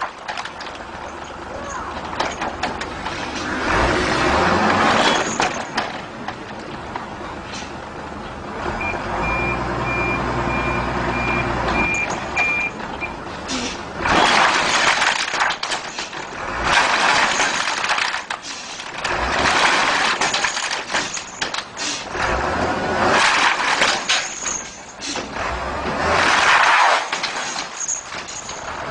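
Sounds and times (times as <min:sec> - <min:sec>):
wood clattering and crashing: 0:00.0 - 0:06.8, 0:14.0 - 0:28.9
truck engine running: 0:00.0 - 0:26.2, 0:27.1 - 0:28.9
truck back-up alarm beeping: 0:08.7 - 0:13.2.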